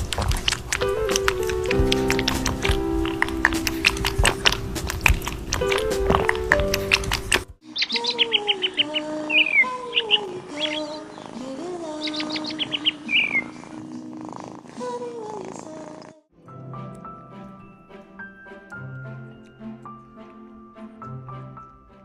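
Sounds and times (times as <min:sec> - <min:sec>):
music: 0:00.1 - 0:12.0, 0:16.3 - 0:22.0
bird chirping: 0:03.8 - 0:14.1
low wavering bird calls: 0:07.6 - 0:13.8.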